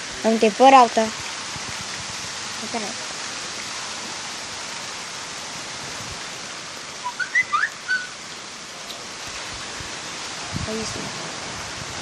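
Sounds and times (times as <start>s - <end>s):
storm rain: 0.0s - 12.0s
wind: 0.0s - 12.0s
high whistled chirps: 7.0s - 8.2s.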